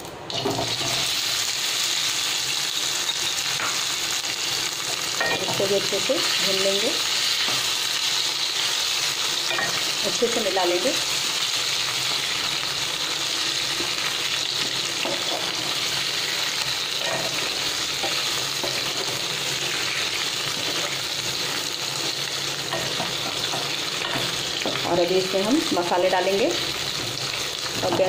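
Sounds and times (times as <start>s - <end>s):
potatoes sizzling in hot oil: 0.0s - 28.0s.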